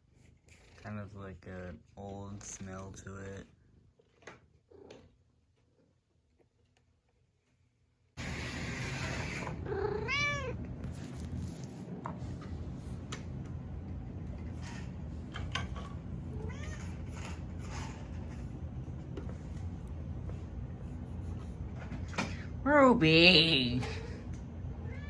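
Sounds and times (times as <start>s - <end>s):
cat meowing: 9.6s - 10.6s, 16.3s - 17.0s.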